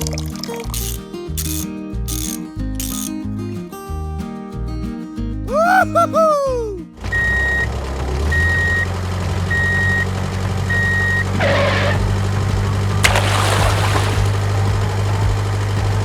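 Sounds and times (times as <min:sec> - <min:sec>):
sharp click: 0:00.8 - 0:03.2
vehicle reversing alarm beeps: 0:07.1 - 0:11.3.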